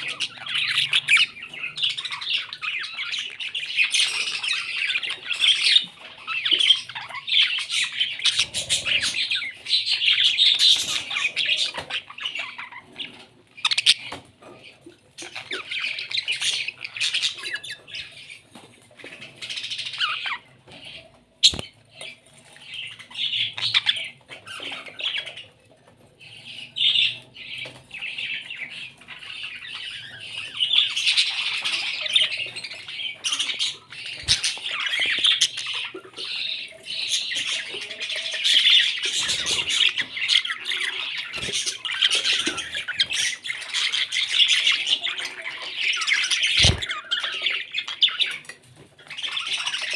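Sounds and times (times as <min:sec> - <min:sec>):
parrots squawking and chattering: 0:00.0 - 0:49.9.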